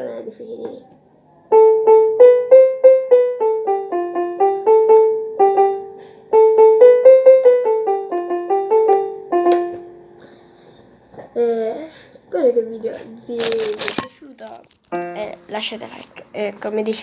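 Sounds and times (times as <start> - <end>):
electronic keyboard piano melody: 1.5 - 10.6, 15.0 - 15.9.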